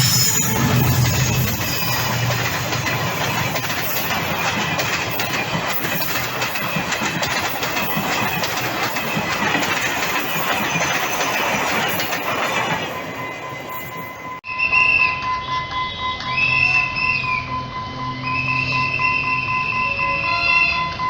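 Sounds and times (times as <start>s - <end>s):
train wheels rumbling and rattling: 0.0s - 14.4s.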